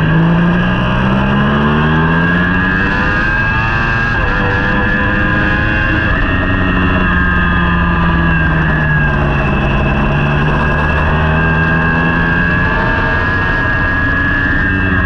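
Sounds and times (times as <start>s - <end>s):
motorbike engine at high revs: 0.0s - 15.0s
rushing noise: 0.0s - 15.0s.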